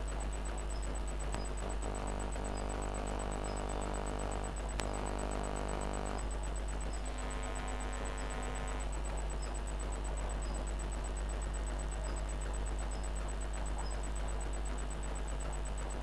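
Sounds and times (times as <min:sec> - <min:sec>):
power supply humming and whirring: 0:00.0 - 0:16.0
click: 0:01.3 - 0:02.7, 0:04.7 - 0:06.2.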